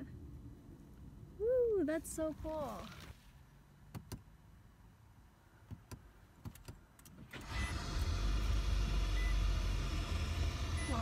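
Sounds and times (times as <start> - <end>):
light clicks in car cabin: 3.9 - 4.3
car engine starting and running: 6.6 - 11.0.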